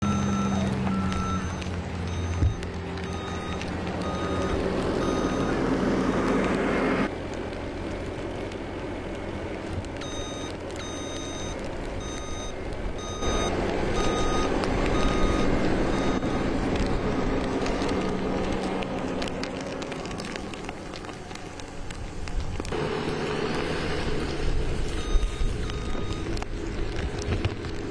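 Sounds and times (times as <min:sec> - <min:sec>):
vehicle reversing alarm beeping: 0:00.0 - 0:05.8, 0:10.0 - 0:17.9, 0:22.9 - 0:23.5, 0:24.9 - 0:26.4
vehicle engine running: 0:00.0 - 0:27.9.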